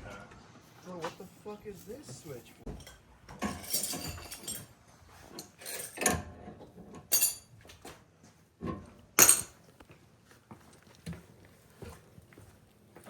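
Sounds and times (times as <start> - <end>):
metal tools clinking: 2.7 - 6.2, 7.0 - 7.5, 9.2 - 9.6.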